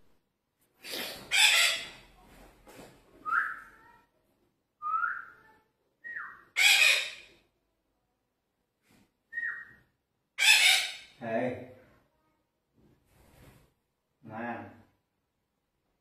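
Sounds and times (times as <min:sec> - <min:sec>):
parakeet screeching: 0:01.3 - 0:02.0, 0:06.5 - 0:07.3, 0:10.4 - 0:11.2.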